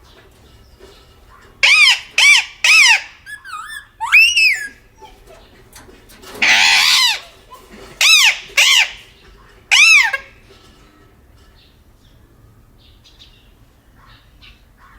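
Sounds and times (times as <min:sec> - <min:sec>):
parrot squawking: 0:01.6 - 0:05.4, 0:06.4 - 0:09.1, 0:09.7 - 0:10.4.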